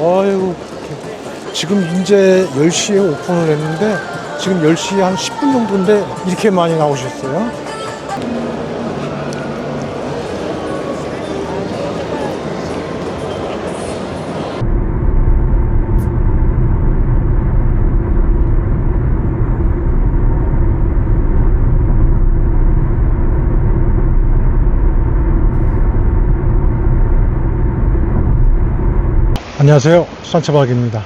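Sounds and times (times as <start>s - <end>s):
car engine and road drone: 7.0s - 29.4s.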